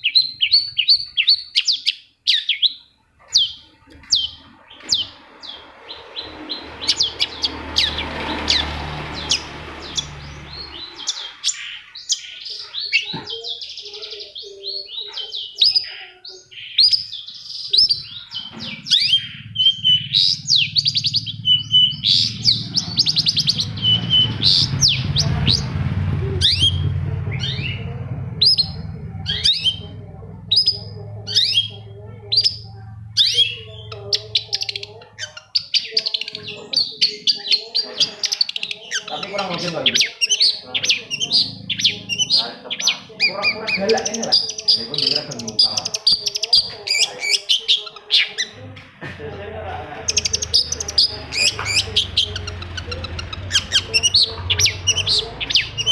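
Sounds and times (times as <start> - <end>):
bird singing high chirps: 0.0 - 48.6, 50.0 - 55.9
low steady hum: 17.9 - 35.4.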